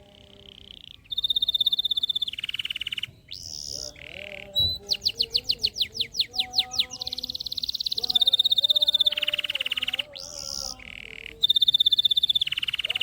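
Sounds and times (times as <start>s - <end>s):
canary singing: 0.0s - 13.0s.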